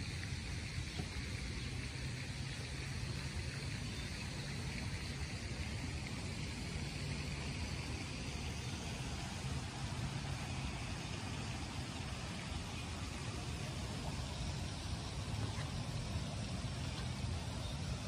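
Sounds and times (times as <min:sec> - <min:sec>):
constant low rumble: 0:00.0 - 0:18.0
rain falling: 0:04.5 - 0:18.0.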